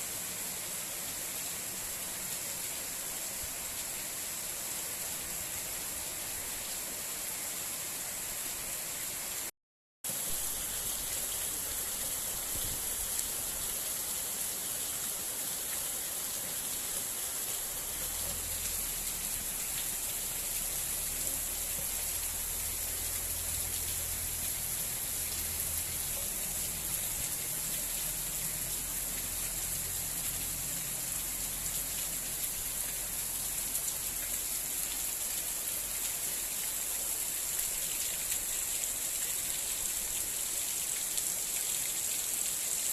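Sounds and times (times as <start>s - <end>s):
heavy rain falling: 10.1s - 42.9s.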